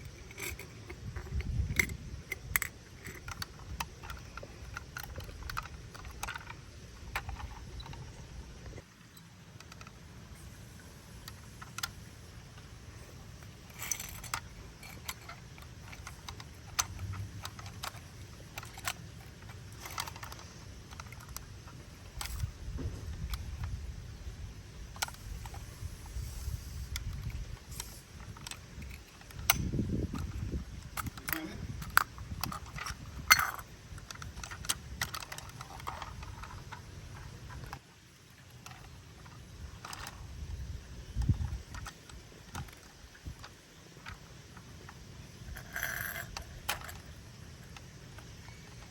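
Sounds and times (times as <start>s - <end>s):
light plastic clicks: 0.0s - 10.0s, 38.5s - 48.9s
plastic toy clicks and knocks: 0.0s - 10.0s, 11.2s - 12.7s, 13.4s - 23.8s, 24.9s - 25.6s, 26.9s - 37.8s, 38.5s - 48.9s
plastic rattles and clatters: 0.0s - 10.1s, 13.3s - 23.8s, 24.8s - 48.9s.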